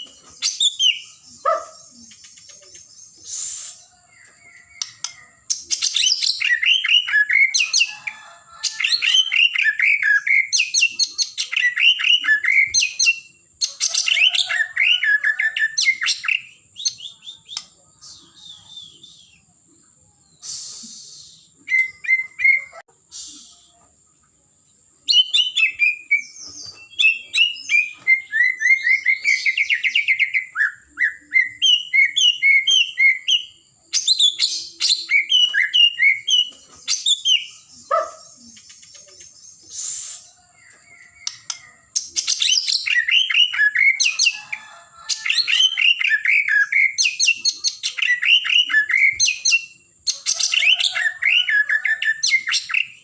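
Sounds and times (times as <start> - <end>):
songbird whistling and trilling: 0.0 - 19.5, 20.3 - 23.9, 25.0 - 53.0.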